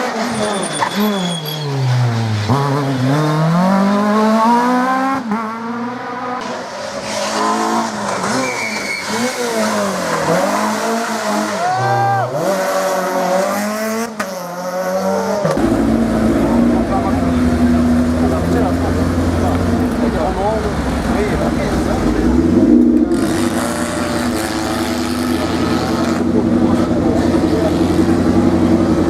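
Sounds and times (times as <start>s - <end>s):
rally car engine at full throttle: 0.0s - 29.0s
tyres squealing: 0.1s - 2.1s, 8.1s - 10.2s.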